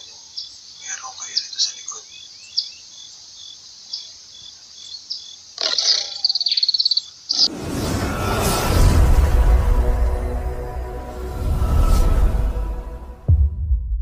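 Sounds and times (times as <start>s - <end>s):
high bird chirps: 0.0s - 7.5s
insect calls: 0.0s - 7.6s
whoosh: 7.4s - 14.0s
loud music: 8.2s - 13.9s.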